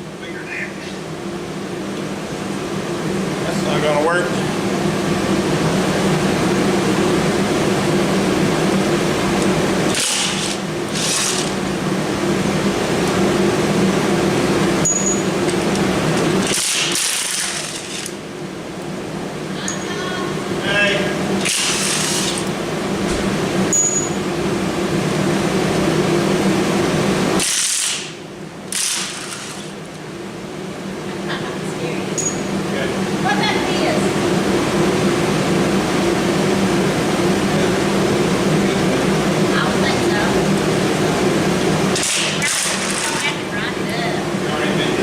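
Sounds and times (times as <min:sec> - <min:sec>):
low mechanical hum: 0:00.0 - 0:45.0
power tool humming: 0:09.4 - 0:11.8, 0:15.7 - 0:18.2, 0:21.3 - 0:22.6, 0:27.4 - 0:29.8, 0:41.9 - 0:43.5.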